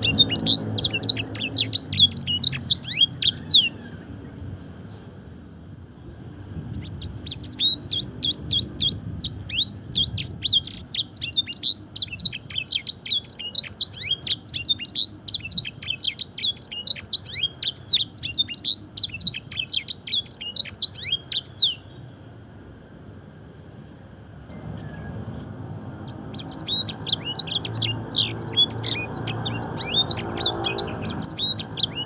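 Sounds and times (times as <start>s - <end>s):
canary singing: 0.0s - 4.1s, 6.7s - 22.1s, 25.9s - 32.0s.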